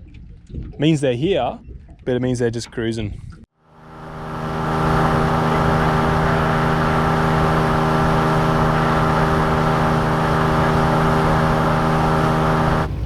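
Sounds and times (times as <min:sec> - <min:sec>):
outboard motor running: 0:03.6 - 0:13.0.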